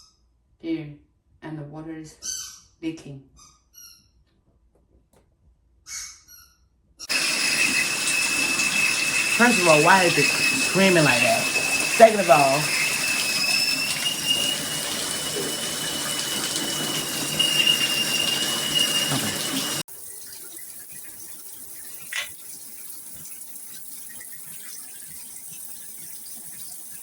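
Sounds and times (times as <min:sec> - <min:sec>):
shower head whistling: 0:07.1 - 0:19.8
shower spray hissing: 0:07.1 - 0:27.0.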